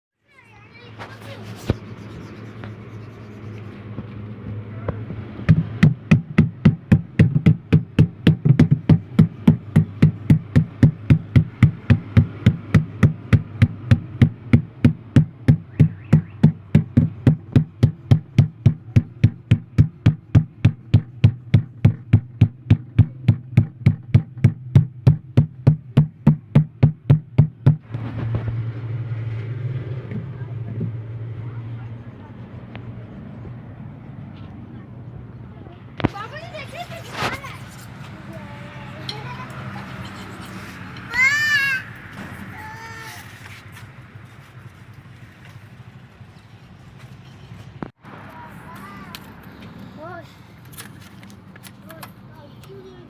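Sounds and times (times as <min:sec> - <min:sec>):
steady low hum: 0:01.3 - 0:36.1
rapid regular knocking: 0:05.4 - 0:27.9.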